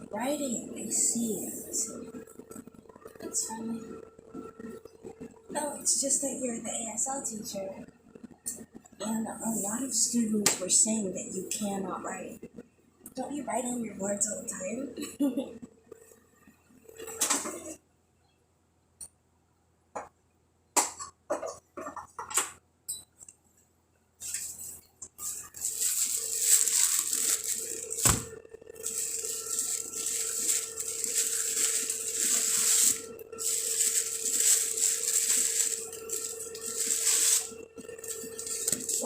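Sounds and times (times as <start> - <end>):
kitchen clicks and knocks: 20.8 - 22.6.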